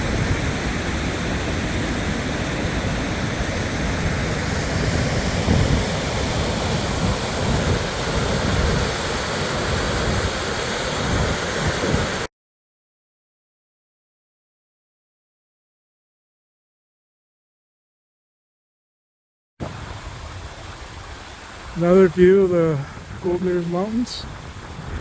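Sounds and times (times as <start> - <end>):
rushing creek water: 0.0 - 12.3, 19.6 - 25.0
wind rumbling on microphone: 0.0 - 12.3, 19.6 - 25.0.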